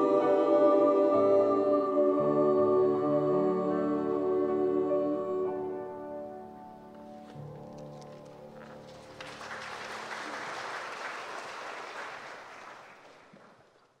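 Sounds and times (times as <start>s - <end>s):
choir sustained chord: 0.0s - 7.4s
audience applause: 8.6s - 14.0s.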